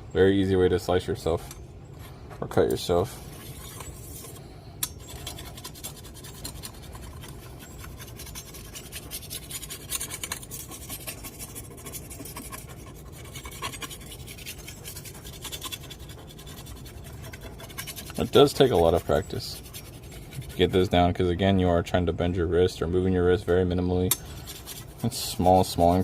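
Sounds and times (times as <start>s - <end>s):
sharpening stone scraping blade: 3.4s - 20.5s.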